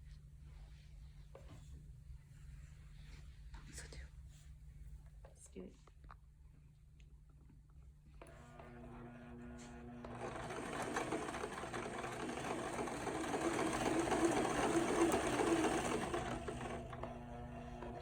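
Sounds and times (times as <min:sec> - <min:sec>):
electric sewing machine running: 0:08.2 - 0:18.0.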